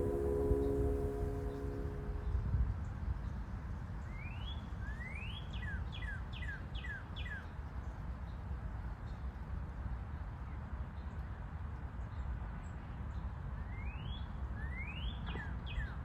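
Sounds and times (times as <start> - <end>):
low outdoor rumble: 0.0 - 2.3.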